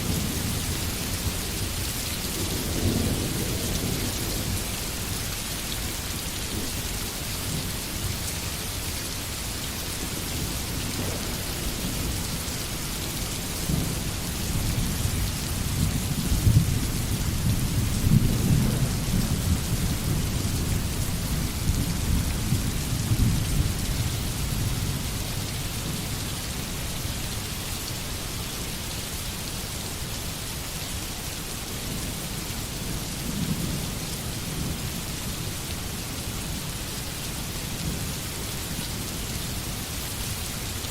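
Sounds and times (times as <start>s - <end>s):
rain falling in forest: 0.0s - 40.9s.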